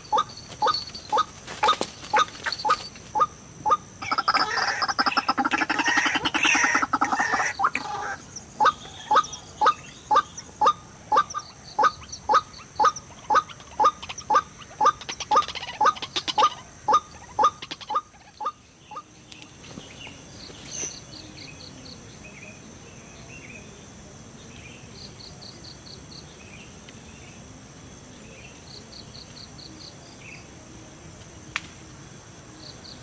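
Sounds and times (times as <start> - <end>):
harsh squawking chorus: 2.1 - 19.0.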